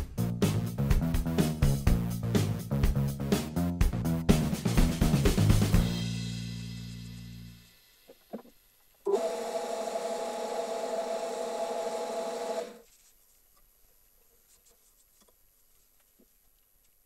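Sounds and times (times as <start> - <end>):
wood lathe with sandpaper rasping: 9.1 - 12.8.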